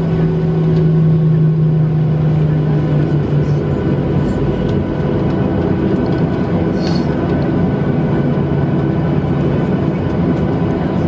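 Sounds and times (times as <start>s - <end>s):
jet engines running loud: 0.0s - 11.0s
airframe rumble: 2.4s - 11.0s.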